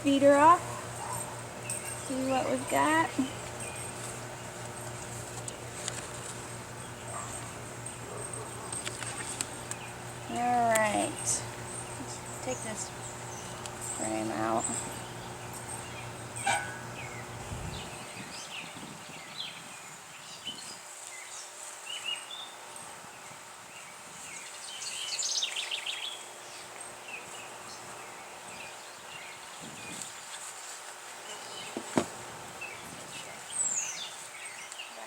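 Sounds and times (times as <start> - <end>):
honeybees buzzing: 0.0 - 18.6, 26.1 - 30.2
birds chirping and trilling: 0.0 - 30.1.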